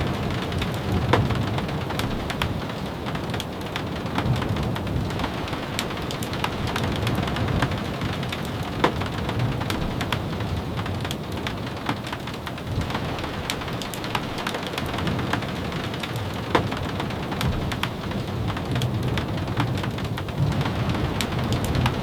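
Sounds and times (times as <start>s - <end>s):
raindrops tapping: 0.0s - 22.0s
rain hissing: 12.6s - 22.0s.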